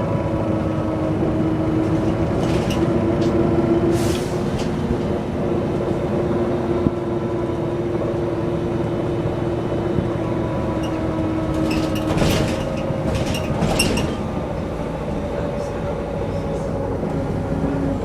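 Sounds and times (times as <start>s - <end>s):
bus engine whine inside cabin: 0.0s - 18.0s.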